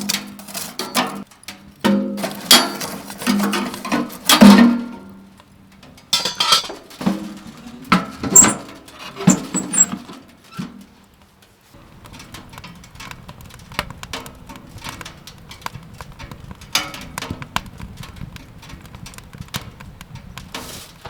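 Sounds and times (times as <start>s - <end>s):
cookware and utensils clinking: 6.1s - 10.7s.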